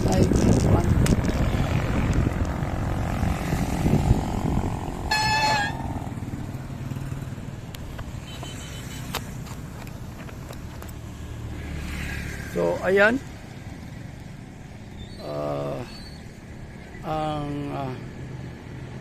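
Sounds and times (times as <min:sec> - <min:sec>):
traffic passing on road: 0:00.0 - 0:19.0
car horn beep: 0:05.1 - 0:06.0, 0:08.2 - 0:09.3.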